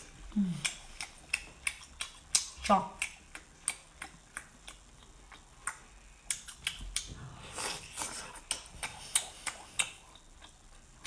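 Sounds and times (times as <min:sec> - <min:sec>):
mouth clicks and smacks: 0:00.5 - 0:07.1, 0:08.0 - 0:10.6.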